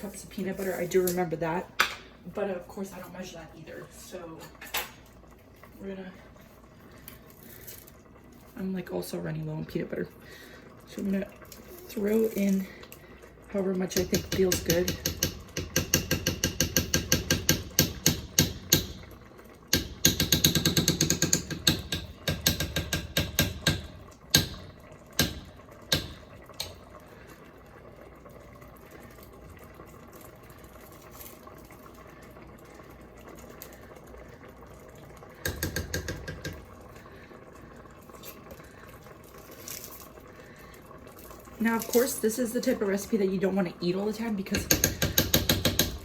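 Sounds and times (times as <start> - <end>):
spoon clacking and scraping pot: 13.8 - 19.1, 19.7 - 26.8, 35.4 - 36.7, 44.5 - 46.0.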